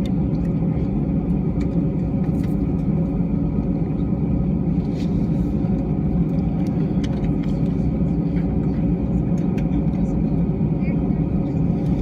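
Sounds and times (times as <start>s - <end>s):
jet airliner low rumble: 0.0s - 12.0s.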